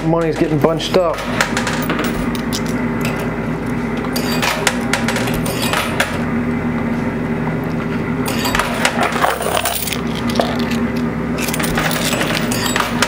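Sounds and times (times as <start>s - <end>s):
arcade machine hum: 0.0s - 13.0s
coins clinking onto playfield: 1.3s - 3.2s, 4.2s - 6.1s, 8.3s - 10.8s, 11.4s - 13.0s.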